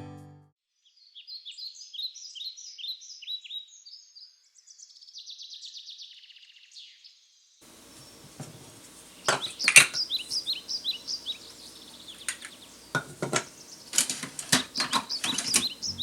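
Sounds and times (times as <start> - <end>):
bird chirping: 0.8 - 16.0
dishes and cutlery clinking: 8.2 - 10.3, 12.2 - 16.0.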